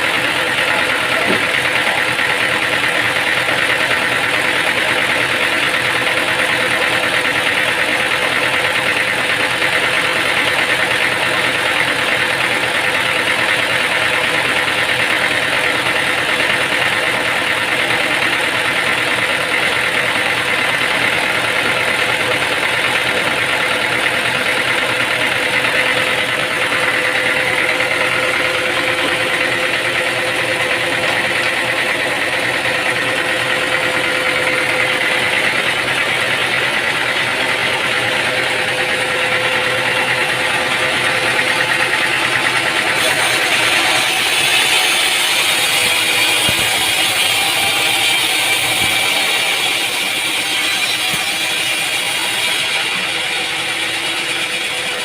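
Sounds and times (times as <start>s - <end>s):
machinery running with hum and whine: 0.0s - 55.0s.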